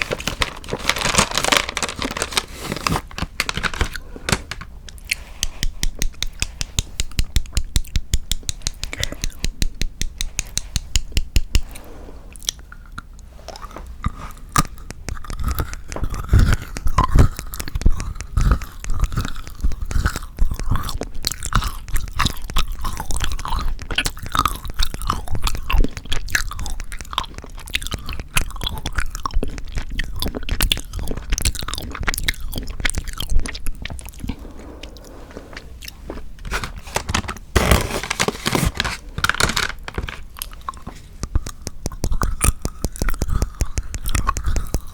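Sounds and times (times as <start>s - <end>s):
chewing chocolate crunches: 12.4s - 38.6s, 39.2s - 44.9s.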